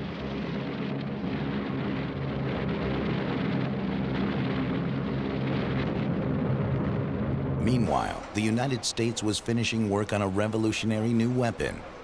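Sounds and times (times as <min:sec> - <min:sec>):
propeller aircraft engines droning: 0:00.0 - 0:12.0.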